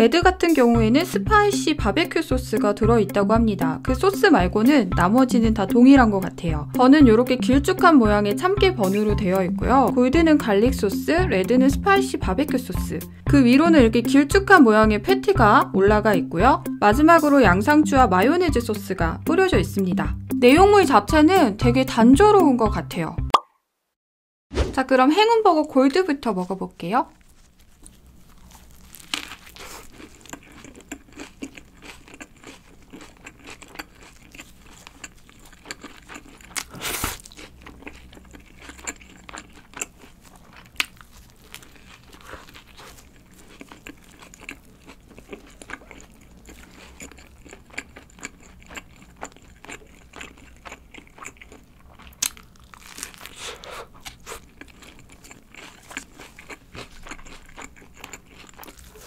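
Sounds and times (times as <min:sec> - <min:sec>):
crisp crunches: 0:27.1 - 0:59.0
burger biting and chewing: 0:27.2 - 0:59.0
wet chewing clicks: 0:27.2 - 0:59.0.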